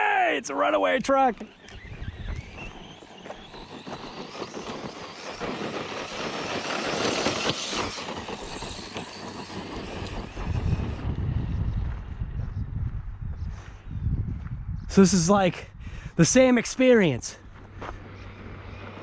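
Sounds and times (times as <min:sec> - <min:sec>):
tyres on gravel: 0:00.7 - 0:11.1, 0:16.7 - 0:19.0
toy truck motor: 0:00.7 - 0:11.5
low rumble: 0:04.6 - 0:15.0.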